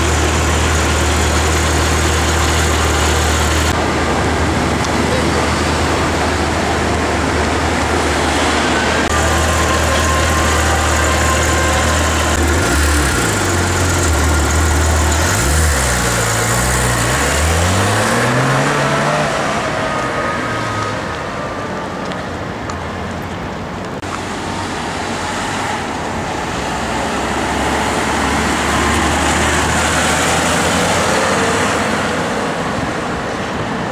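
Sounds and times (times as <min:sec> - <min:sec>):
car engine revving: 0:00.0 - 0:03.8, 0:08.1 - 0:19.9
street traffic noise: 0:00.0 - 0:33.9.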